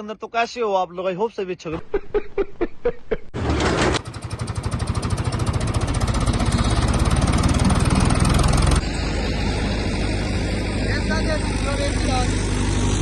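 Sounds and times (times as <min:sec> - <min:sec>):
tractor engine thumping: 0:03.3 - 0:08.8.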